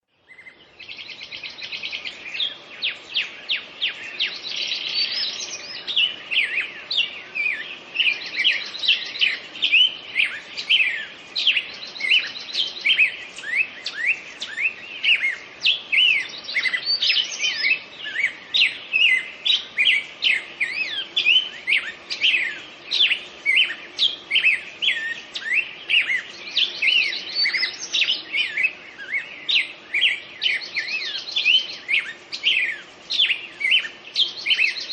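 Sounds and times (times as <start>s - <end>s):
birdsong chirps and trills: 0.1s - 34.9s.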